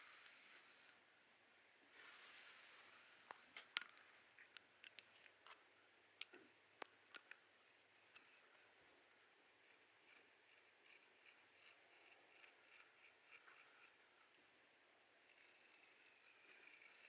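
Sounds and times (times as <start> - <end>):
soft rubbing hiss: 0.0 - 1.1, 1.8 - 5.7, 7.5 - 17.0
light clicks and taps: 3.3 - 5.6, 6.2 - 7.4.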